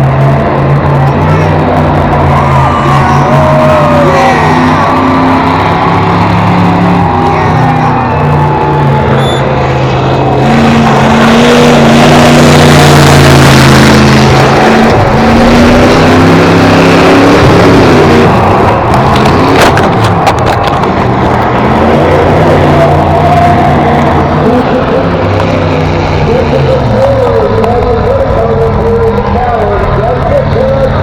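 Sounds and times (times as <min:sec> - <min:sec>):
car engines running: 0:00.0 - 0:31.0
harsh rough noise: 0:00.0 - 0:31.0.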